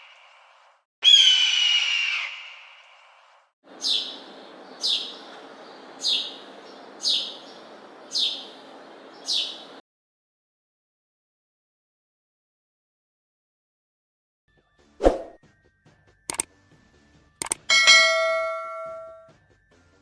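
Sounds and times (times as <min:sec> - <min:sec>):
bird call falling in pitch: 0:03.7 - 0:09.8
light background hiss: 0:03.7 - 0:09.8
sharp downward bird chirps: 0:03.7 - 0:09.8.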